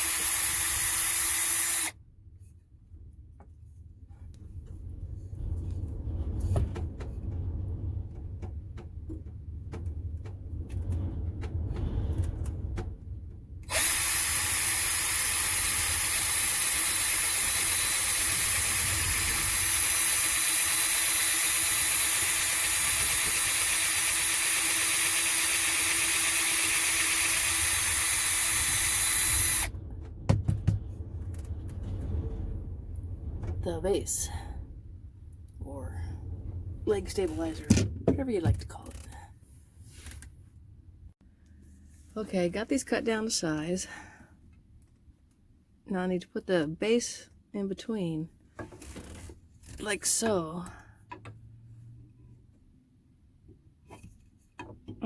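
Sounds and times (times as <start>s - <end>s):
handheld power tool running: 0.0s - 2.0s, 13.7s - 29.7s.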